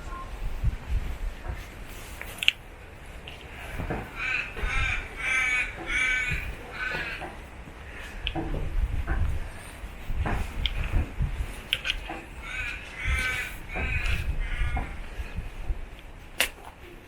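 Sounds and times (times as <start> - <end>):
crow cawing: 3.9 - 8.2, 12.4 - 15.1.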